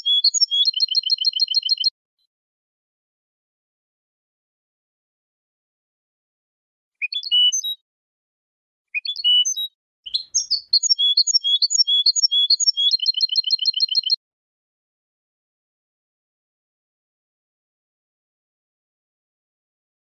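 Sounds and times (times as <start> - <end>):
goldfinch singing: 0.0 - 1.9, 7.0 - 7.8, 9.0 - 14.2.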